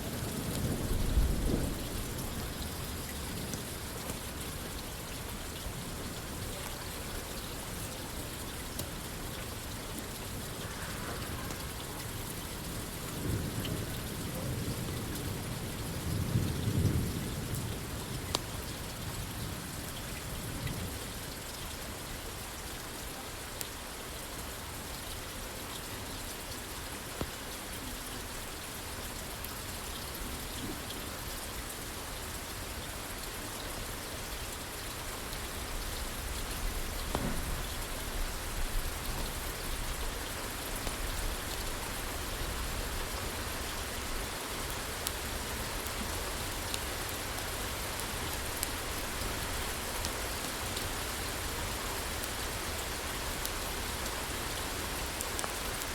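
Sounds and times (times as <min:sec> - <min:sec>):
rain falling on a roof: 0:00.0 - 0:55.9
wood fire crackling pops: 0:37.0 - 0:37.7.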